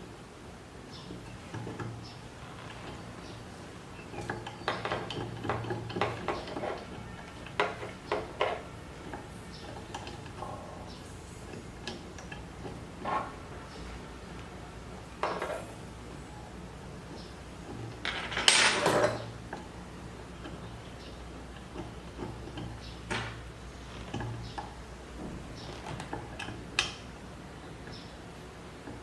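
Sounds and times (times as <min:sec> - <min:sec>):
metal tools clinking and knocking: 0:00.9 - 0:13.4, 0:17.1 - 0:19.8.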